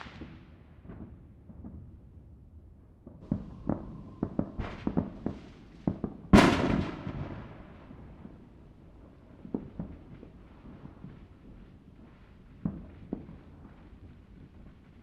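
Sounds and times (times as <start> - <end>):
firecracker pops: 0.0 - 1.8, 3.2 - 7.6
loud firework bang: 3.2 - 7.7.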